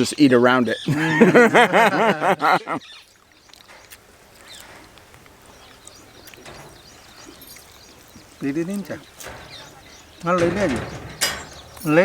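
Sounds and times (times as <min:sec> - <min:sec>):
faint ticks: 0:03.0 - 0:12.0.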